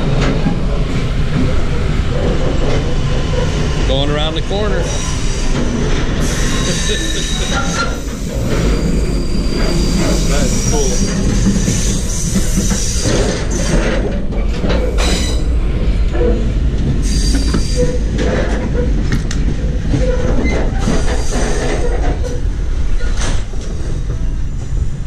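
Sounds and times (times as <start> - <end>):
train wheels rumbling on rail: 0.0 - 25.0
metallic wheel squeals: 4.8 - 13.8.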